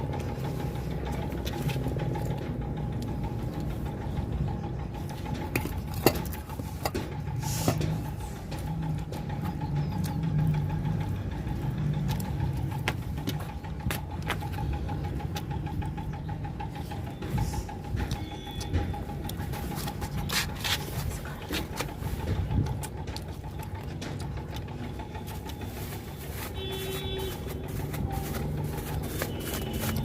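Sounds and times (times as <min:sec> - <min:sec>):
pulsing motor hum: 0:00.0 - 0:30.0
chewing with mouth clicks: 0:16.8 - 0:25.7.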